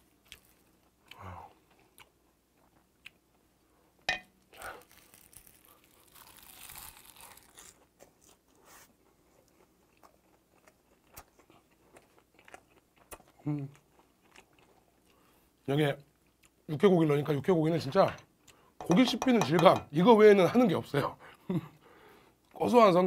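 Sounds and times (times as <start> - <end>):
food crunching in mouth: 4.5 - 15.3.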